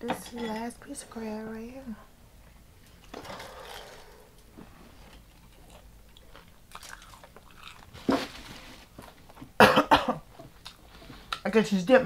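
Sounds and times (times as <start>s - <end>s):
crunchy food chewing: 5.1s - 9.5s.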